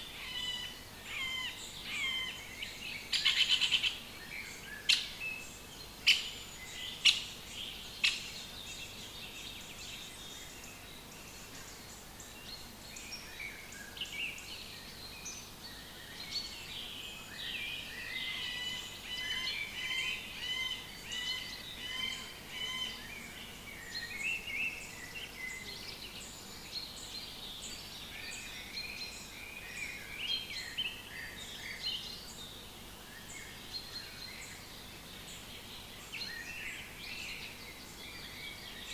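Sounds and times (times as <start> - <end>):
songbirds singing and chirping: 0.0 - 38.9
steady background hiss: 0.0 - 38.9.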